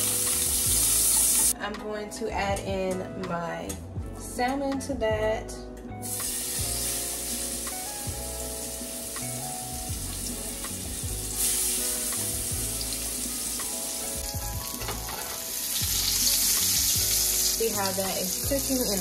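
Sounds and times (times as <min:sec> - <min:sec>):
fish sizzling in a pan: 0:00.0 - 0:01.6, 0:06.0 - 0:19.0.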